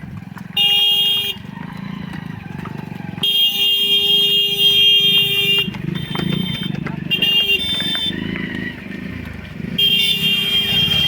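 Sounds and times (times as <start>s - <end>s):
vehicle horn blasts: 0.6s - 1.4s, 3.2s - 8.3s, 9.7s - 11.0s.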